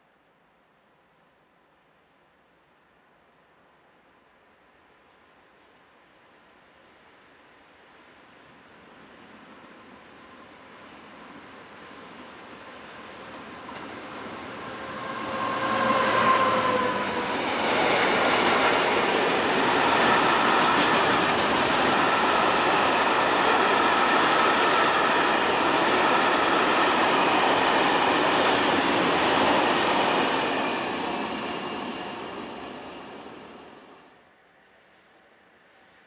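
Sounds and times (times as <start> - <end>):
train passing close by: 5.2 - 36.0
wheels rushing on rails: 9.3 - 34.1.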